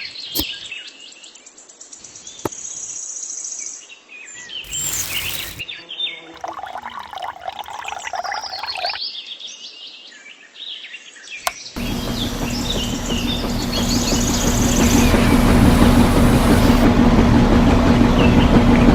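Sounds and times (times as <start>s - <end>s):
birds chirping: 11.8s - 16.8s
steady mechanical noise with hum: 11.8s - 18.9s.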